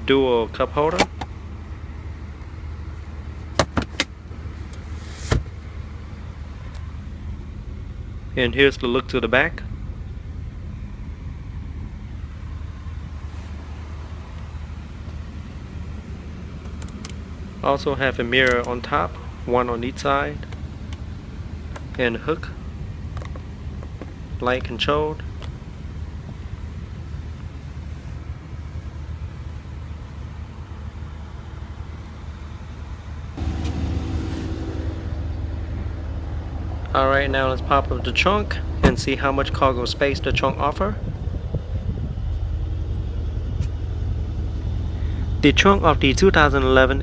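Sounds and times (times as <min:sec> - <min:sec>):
low hum inside car cabin: 0:00.0 - 0:47.0.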